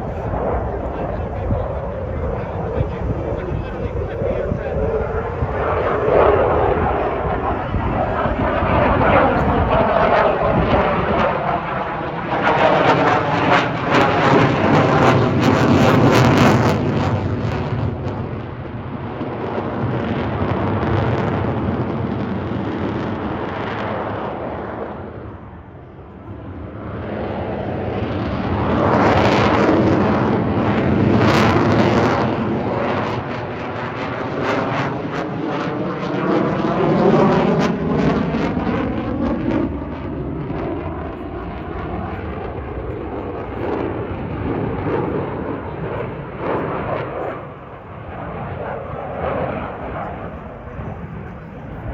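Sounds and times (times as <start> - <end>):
airplane flying past: 0.0 - 51.9.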